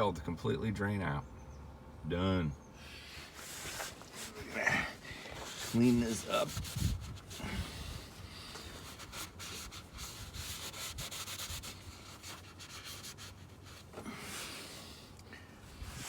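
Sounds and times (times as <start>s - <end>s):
rag rubbing metal: 3.4s - 7.5s.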